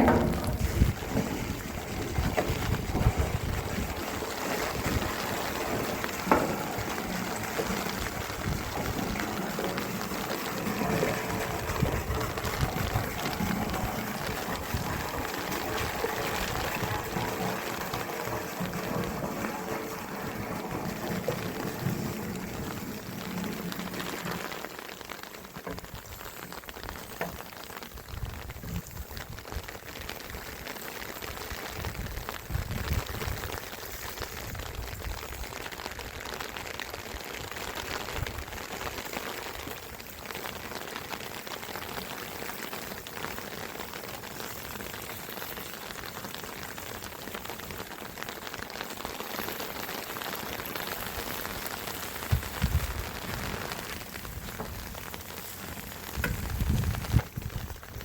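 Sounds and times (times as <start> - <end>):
low thumps: 0.0 - 4.0
running water hiss: 0.0 - 34.6.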